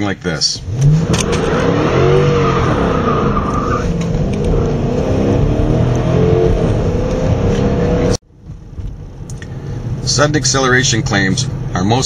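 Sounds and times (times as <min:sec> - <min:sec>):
car engine accelerating hard: 0:00.6 - 0:08.2.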